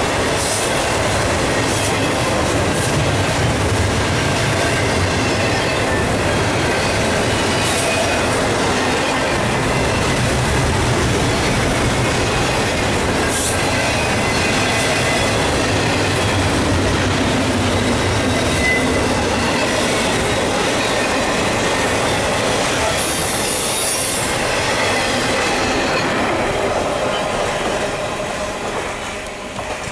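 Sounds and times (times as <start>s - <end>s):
freight train wheels rumbling: 0.0s - 29.9s
high squeal: 17.8s - 20.2s, 22.8s - 28.4s.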